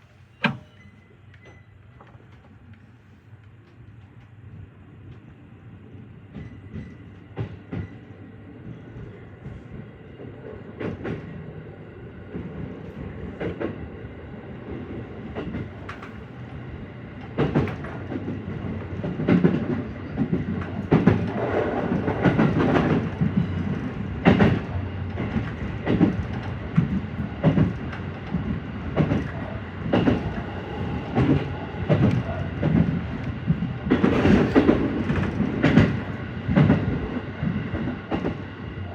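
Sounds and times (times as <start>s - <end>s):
electric train running: 17.2s - 38.4s
wheels clacking over rail joints: 17.2s - 38.4s.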